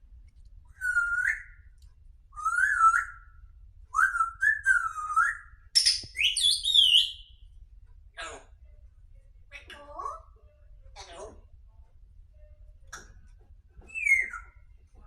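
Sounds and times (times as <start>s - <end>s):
parrot whistling: 0.8s - 1.7s, 2.4s - 7.3s, 13.9s - 14.6s.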